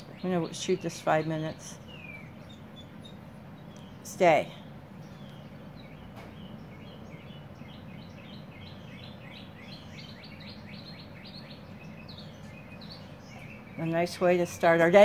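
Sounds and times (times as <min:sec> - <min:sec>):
bird singing: 0:00.0 - 0:15.0
steady low hum: 0:00.0 - 0:15.0.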